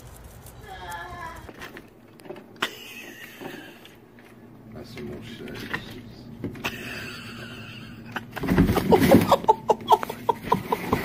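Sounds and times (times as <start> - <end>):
person laughing: 2.6 - 4.0, 6.6 - 11.0
loud rustle or thump: 8.4 - 9.3.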